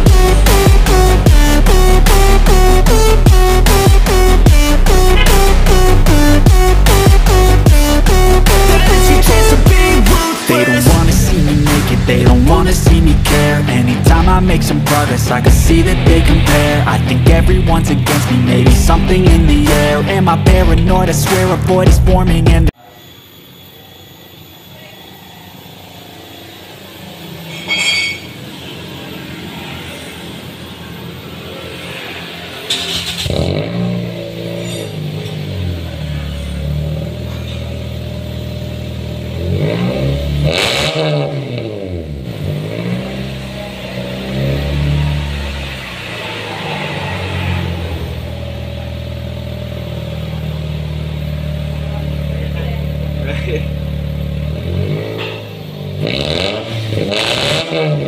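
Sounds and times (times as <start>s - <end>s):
high-pitched squeal: 0.0s - 18.5s, 22.8s - 40.2s, 42.6s - 51.7s
car exhaust deep drone: 10.9s - 22.8s, 33.2s - 58.0s
car exhaust low rumble: 47.5s - 55.2s.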